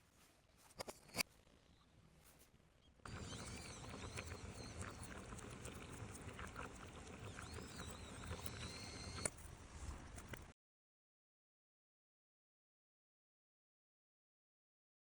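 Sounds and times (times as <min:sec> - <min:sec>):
birds chirping: 0:03.1 - 0:09.3.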